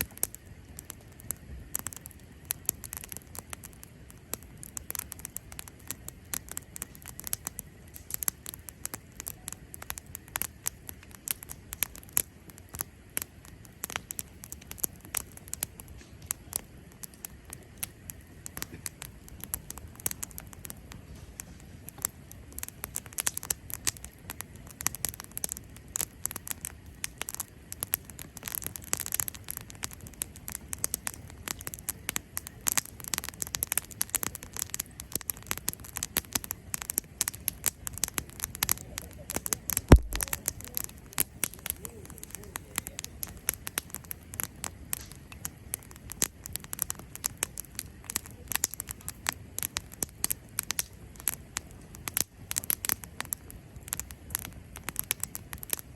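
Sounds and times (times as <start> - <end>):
campfire crackling: 0.0 - 55.9
sharp loud pop of fire: 39.8 - 40.8.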